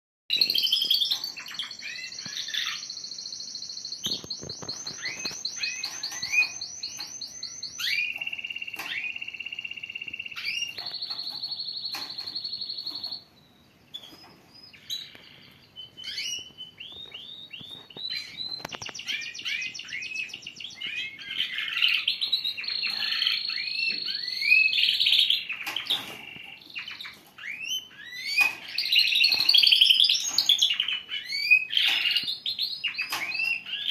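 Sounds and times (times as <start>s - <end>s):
canaries singing trills: 0.3s - 33.9s.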